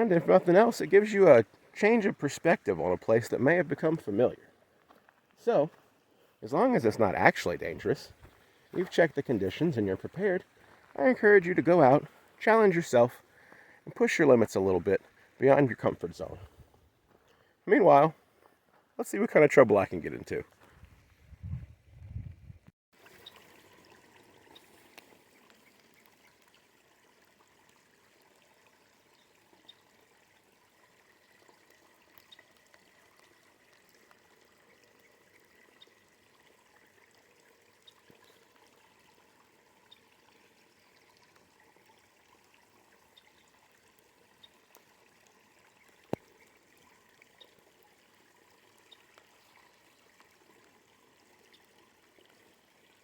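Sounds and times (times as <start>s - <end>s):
light rain hiss: 0.0s - 18.8s, 23.0s - 53.0s
raindrop ticks: 32.0s - 34.2s.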